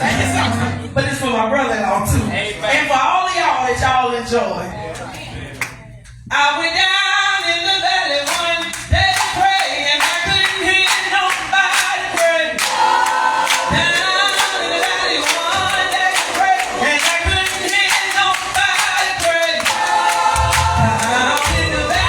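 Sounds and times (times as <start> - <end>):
gospel choir singing: 0.0 - 1.1, 7.4 - 22.0
steady beat: 8.3 - 22.0.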